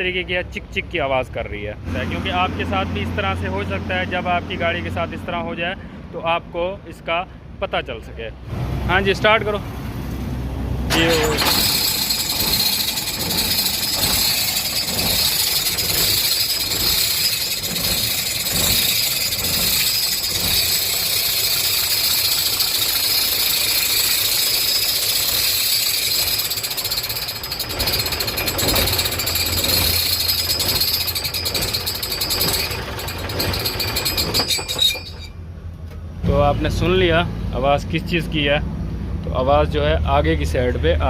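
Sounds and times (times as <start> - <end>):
diesel truck engine running: 8.4 - 41.0
rapid rhythmic ticking: 11.0 - 35.3.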